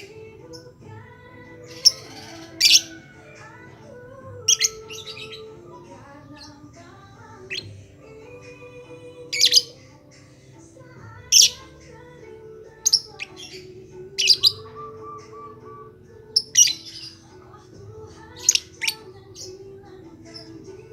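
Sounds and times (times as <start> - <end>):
lovebird chirping and squawking: 1.6 - 3.2, 4.4 - 5.7, 7.4 - 7.8, 9.3 - 9.9, 11.3 - 11.7, 12.8 - 15.7, 16.3 - 17.5, 18.3 - 19.6.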